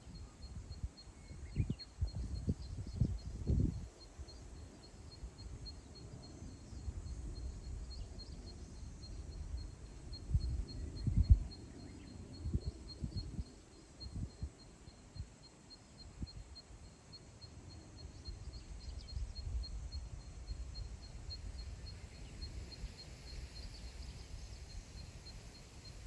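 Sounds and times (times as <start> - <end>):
wind gusting on microphone: 0.0 - 14.6.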